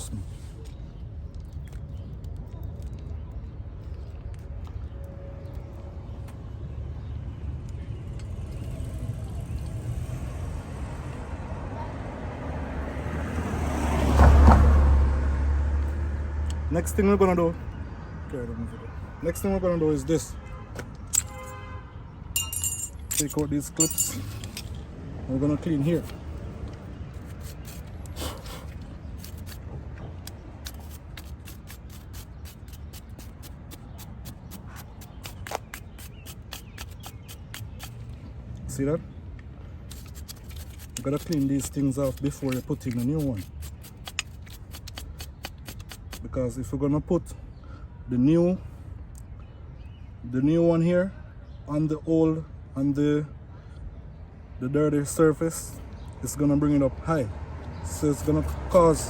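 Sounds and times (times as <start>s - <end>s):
vehicle driving past: 9.0s - 16.7s.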